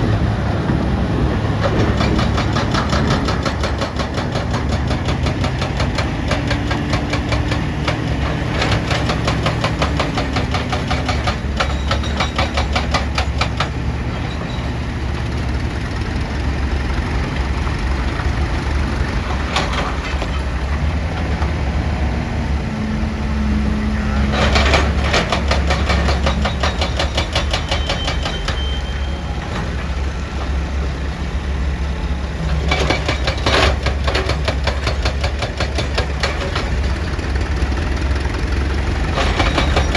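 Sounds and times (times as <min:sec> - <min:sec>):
excavator diesel engine running: 0:00.0 - 0:39.9
hydraulic breaker hammering rock: 0:01.6 - 0:13.9, 0:24.2 - 0:28.9, 0:32.5 - 0:37.8, 0:38.9 - 0:39.9.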